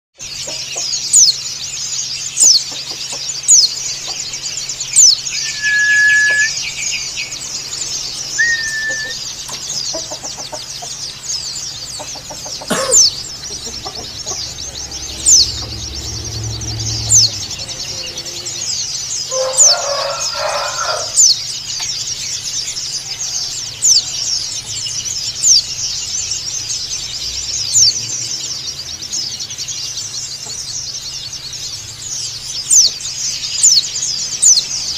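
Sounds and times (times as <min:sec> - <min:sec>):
bird twittering chatter: 0:00.2 - 0:34.9
lower longer bird call: 0:05.3 - 0:06.9, 0:08.3 - 0:09.3
down-slurred bird whistles: 0:05.3 - 0:07.0, 0:08.3 - 0:09.3.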